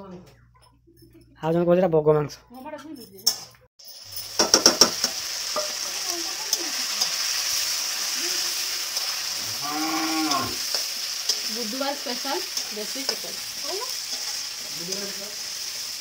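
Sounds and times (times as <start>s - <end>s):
onions sizzling in oil: 3.8s - 16.0s
metal spatula knocking on pan: 4.4s - 5.8s.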